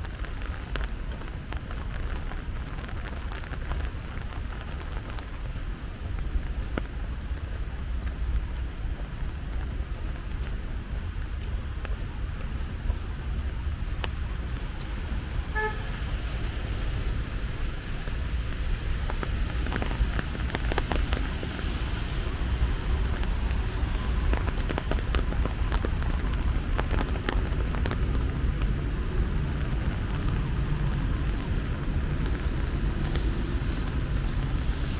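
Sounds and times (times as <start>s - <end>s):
rain falling: 0.0s - 34.9s
sharp drips and ticks: 0.0s - 34.9s
traffic rumble: 0.0s - 34.9s
wind on microphone: 0.0s - 34.9s
car horn toot: 15.4s - 16.1s.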